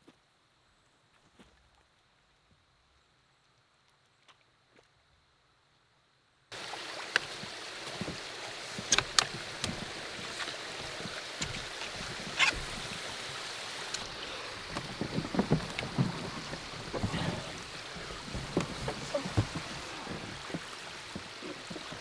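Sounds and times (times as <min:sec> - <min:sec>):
paddle knocks and splashes: 0:06.5 - 0:22.0
water washing: 0:06.5 - 0:22.0.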